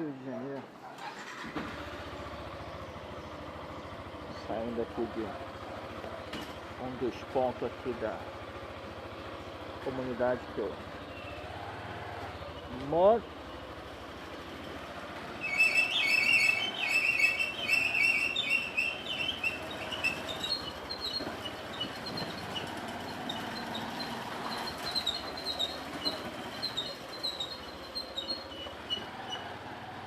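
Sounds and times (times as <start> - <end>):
rapid high-pitched chirping: 15.4 - 22.6, 23.3 - 29.0.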